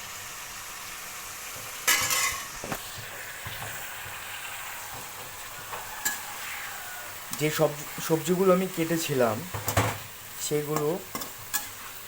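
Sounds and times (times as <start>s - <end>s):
vegetables sizzling in hot oil: 0.0s - 12.0s
clattering against a pan: 1.9s - 2.5s, 9.5s - 10.0s.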